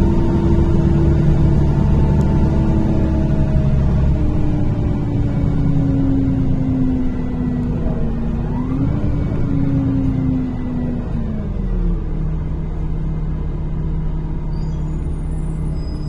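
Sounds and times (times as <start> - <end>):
bus engine rumble and whine: 0.0 - 16.0.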